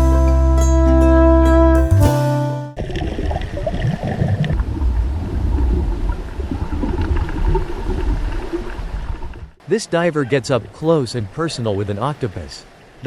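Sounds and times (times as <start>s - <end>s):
underwater rumble and gurgle: 2.8s - 9.6s.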